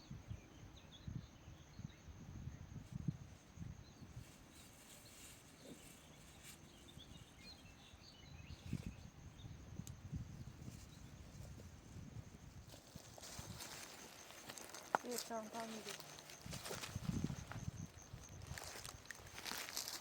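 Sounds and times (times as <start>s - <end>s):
small bird chirps: 3.8s - 9.9s.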